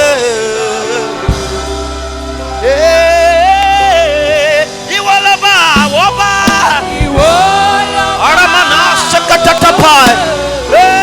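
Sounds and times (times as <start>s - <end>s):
sustained chords: 0.0s - 11.0s
deep bass note: 5.8s - 8.4s.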